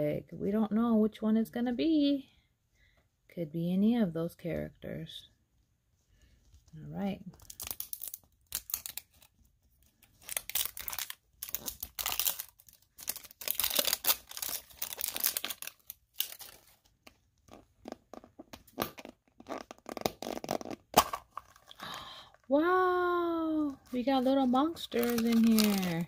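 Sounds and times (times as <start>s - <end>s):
wrapping being torn and crinkled: 7.3s - 17.7s, 22.9s - 26.0s.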